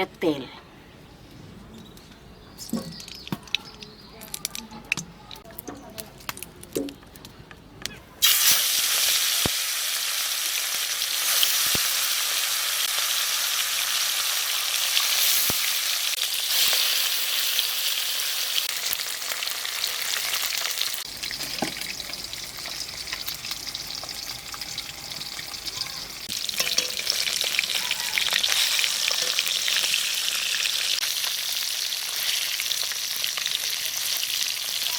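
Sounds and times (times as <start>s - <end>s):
fish sizzling in hot oil: 8.2s - 34.9s.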